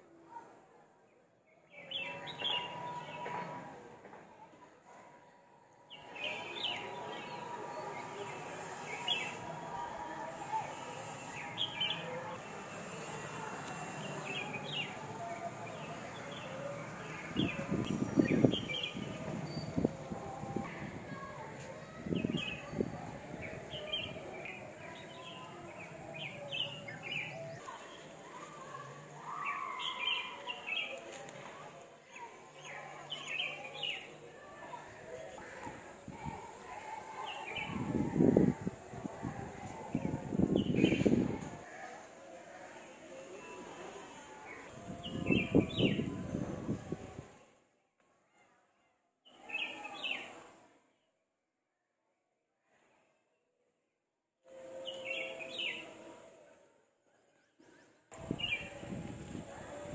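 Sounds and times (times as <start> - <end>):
outdoor background hiss: 5.3 - 47.7.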